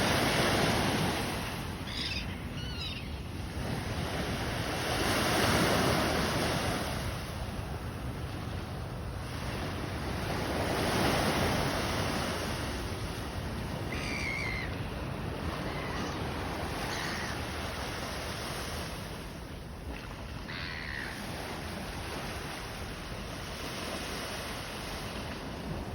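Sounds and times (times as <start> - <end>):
sea surf washing: 0.0 - 8.2
gulls calling: 0.1 - 3.5, 13.6 - 18.1, 20.4 - 21.5.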